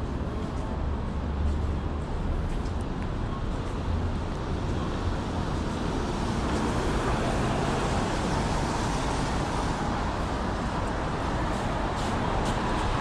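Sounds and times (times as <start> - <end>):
passing vehicles traffic: 0.0 - 13.0.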